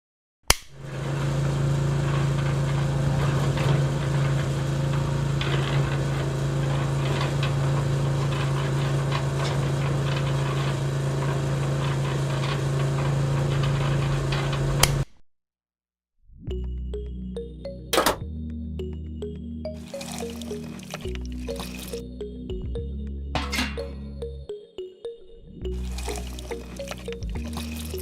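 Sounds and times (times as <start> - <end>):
small motor humming: 25.7 - 28.0.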